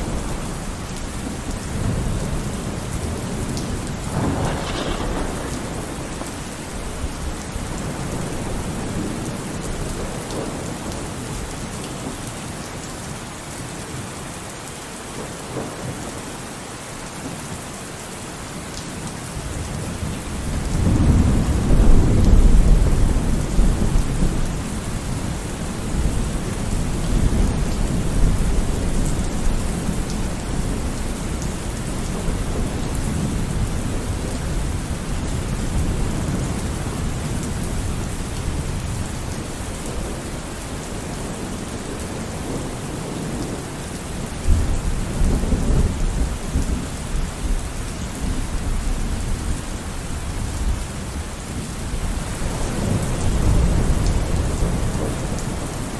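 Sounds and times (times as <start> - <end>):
steady rain: 0.0 - 55.9
thunder rolling: 1.2 - 10.6.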